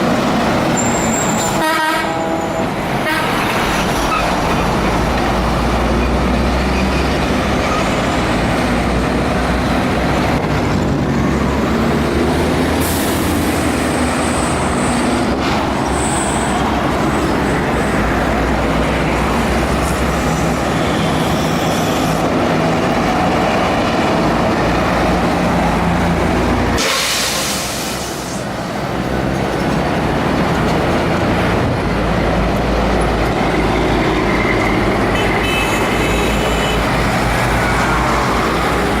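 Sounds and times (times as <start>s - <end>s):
heavy truck engines: 0.0s - 39.0s
sharp hiss: 26.8s - 28.5s.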